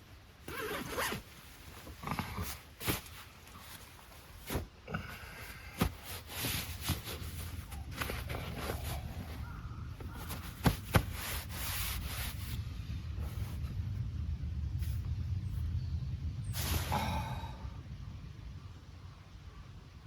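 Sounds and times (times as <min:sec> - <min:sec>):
camping gear rustling: 0:00.0 - 0:12.6, 0:13.2 - 0:13.8, 0:16.6 - 0:17.5.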